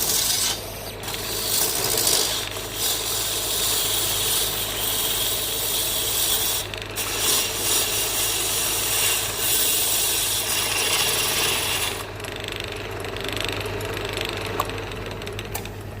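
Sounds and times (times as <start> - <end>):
turning tool scraping wood: 0.0 - 12.1
wood lathe motor hum: 0.0 - 16.0.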